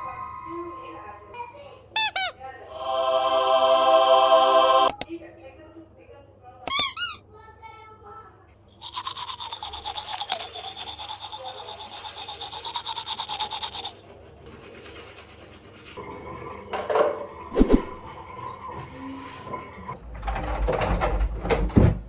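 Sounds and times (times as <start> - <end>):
rhythmic scrubbing strokes: 2.7 - 5.0.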